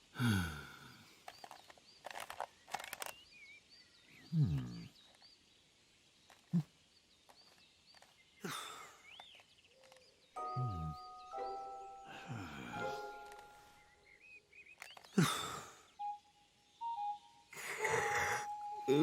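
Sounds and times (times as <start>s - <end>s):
person grunting and sighing: 0.0s - 1.0s, 4.3s - 4.9s, 8.4s - 9.0s, 12.1s - 13.2s, 15.2s - 15.9s
faint birdsong chirping: 0.0s - 19.0s
sharp clicks: 1.2s - 3.3s, 14.7s - 15.5s.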